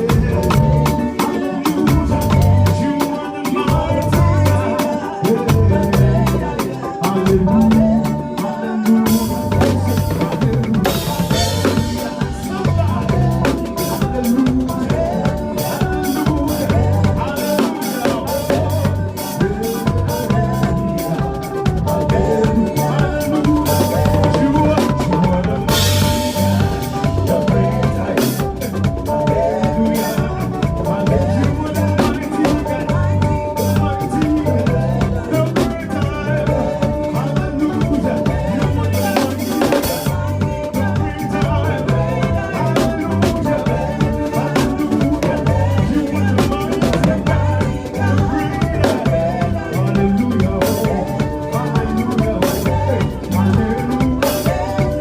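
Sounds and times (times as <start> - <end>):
backing music: 0.0 - 55.0
drum kit groove: 0.0 - 55.0.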